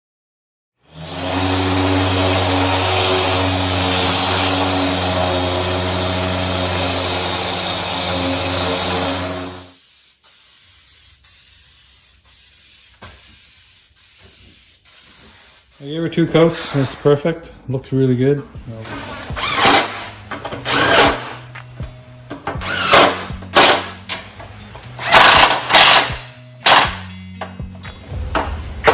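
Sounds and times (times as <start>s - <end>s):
paint sprayer hissing: 2.1s - 16.3s.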